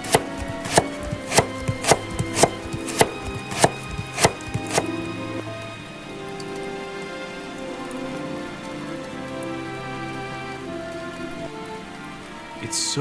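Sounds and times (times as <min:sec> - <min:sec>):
knife chopping on cutting board: 0:00.1 - 0:04.9.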